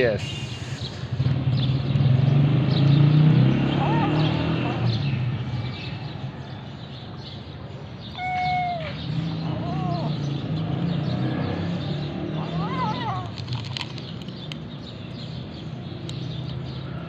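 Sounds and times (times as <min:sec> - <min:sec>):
kitten meowing: 0:08.1 - 0:10.2.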